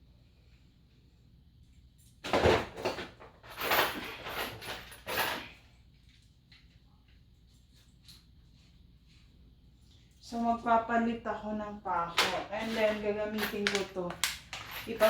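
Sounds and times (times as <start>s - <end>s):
scraping and knocking handling noise: 12.1s - 15.0s.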